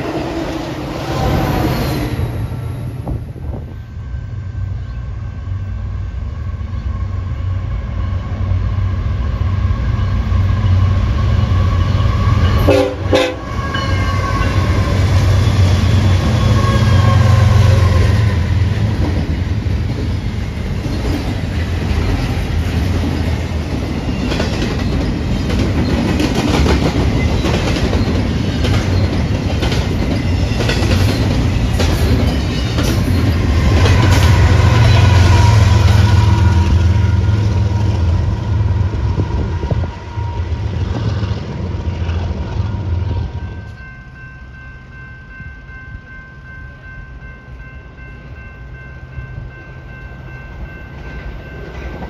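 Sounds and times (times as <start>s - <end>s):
diesel locomotive drone: 0.0s - 52.0s
freight train rumble: 0.0s - 52.0s
train horn: 4.0s - 18.7s, 33.7s - 41.2s.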